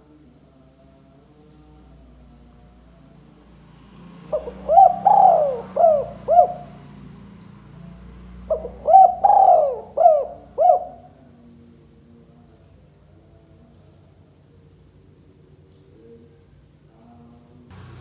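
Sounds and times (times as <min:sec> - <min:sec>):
dove cooing: 0:04.3 - 0:06.8, 0:08.4 - 0:11.2.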